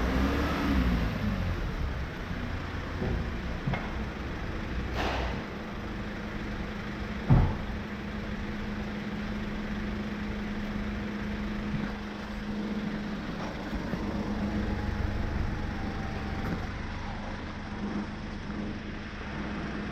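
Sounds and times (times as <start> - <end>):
truck engine idling: 0.0 - 19.9
sharp thump: 4.9 - 5.6, 7.3 - 7.8.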